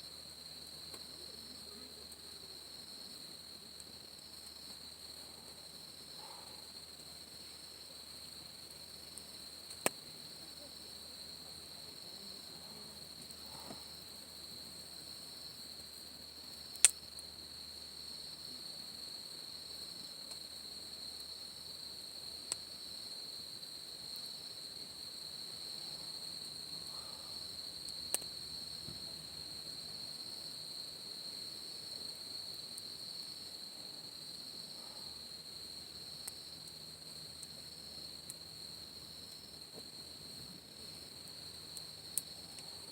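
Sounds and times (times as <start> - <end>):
insects chirring: 0.0 - 42.9
campfire wood popping: 8.9 - 10.4, 16.6 - 17.3, 27.8 - 29.2, 39.2 - 42.9.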